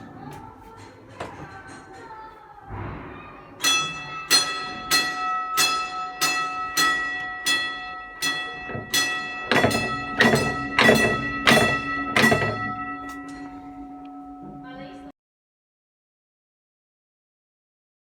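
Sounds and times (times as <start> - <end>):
tram gong ringing: 3.6 - 15.1.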